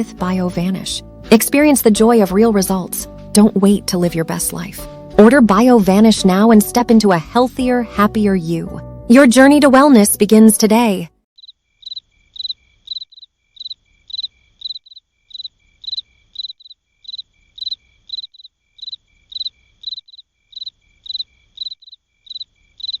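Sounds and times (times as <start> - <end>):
cricket chirping: 11.4 - 23.0.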